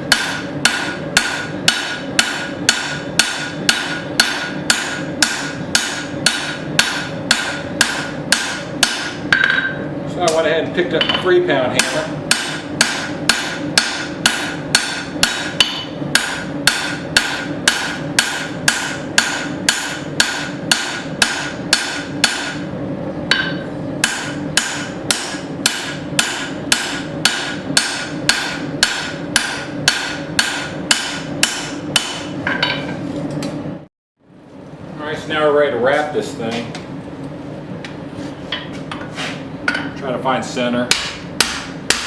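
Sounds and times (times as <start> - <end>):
hammer striking steel on anvil: 0.0 - 22.7, 23.3 - 33.0, 40.9 - 42.0
steady hum: 0.0 - 42.0.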